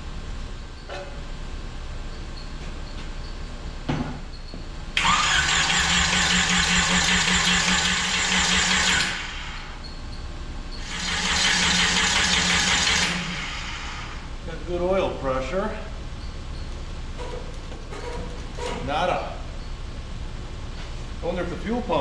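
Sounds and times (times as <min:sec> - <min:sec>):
engine starter cranking: 0:05.0 - 0:09.6, 0:10.8 - 0:14.0.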